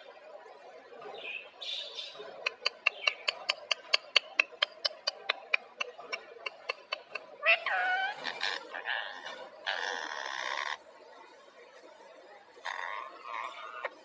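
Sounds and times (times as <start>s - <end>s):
parrot squawk: 6.7s - 10.8s, 12.6s - 13.9s.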